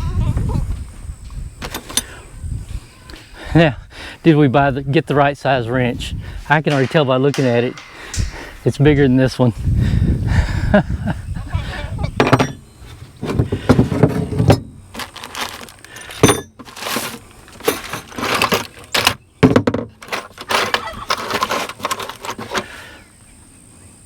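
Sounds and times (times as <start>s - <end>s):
metal tools clinking: 1.6s - 2.2s, 6.6s - 9.5s, 12.2s - 12.6s, 13.2s - 19.2s, 20.0s - 22.6s.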